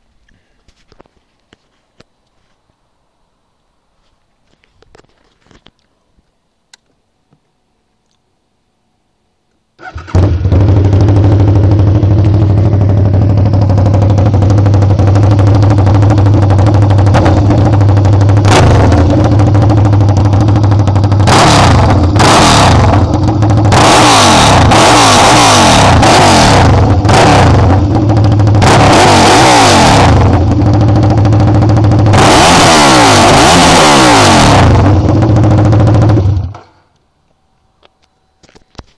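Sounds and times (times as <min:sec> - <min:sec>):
motorcycle engine revving: 0:09.8 - 0:36.7.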